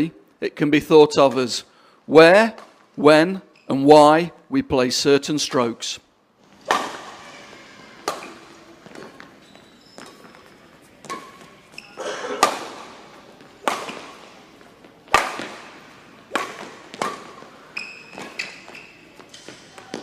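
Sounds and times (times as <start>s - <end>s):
shoe squeaks: 3.5s - 3.8s, 6.6s - 12.5s, 17.6s - 20.0s
racket striking shuttlecock: 6.5s - 9.4s, 10.0s - 20.0s.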